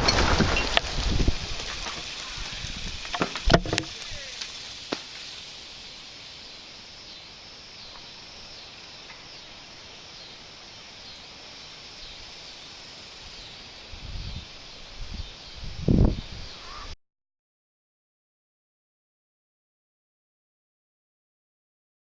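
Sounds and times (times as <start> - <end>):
high insect buzz: 0.0 - 17.0.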